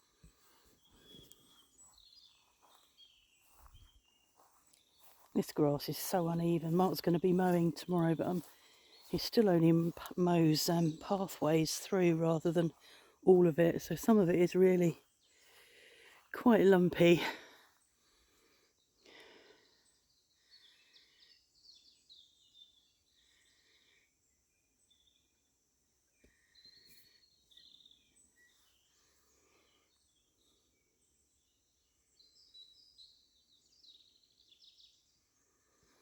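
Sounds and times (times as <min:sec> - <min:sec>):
birds chirping and singing: 0:00.2 - 0:23.8.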